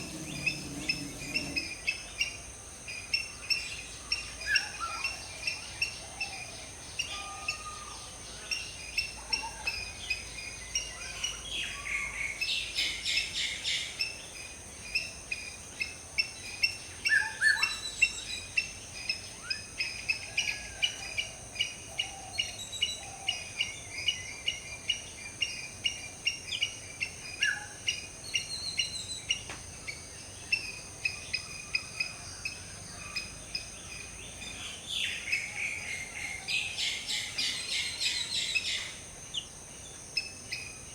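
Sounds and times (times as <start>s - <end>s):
steady high-pitched buzz: 0.0s - 2.0s
birds chirping: 0.0s - 2.3s.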